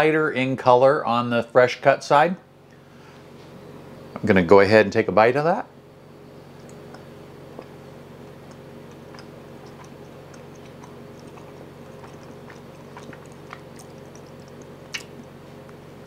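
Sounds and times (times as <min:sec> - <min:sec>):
steady low hum: 0:00.0 - 0:16.0
wet mouth clicks: 0:06.5 - 0:15.8
person chewing: 0:06.5 - 0:16.0.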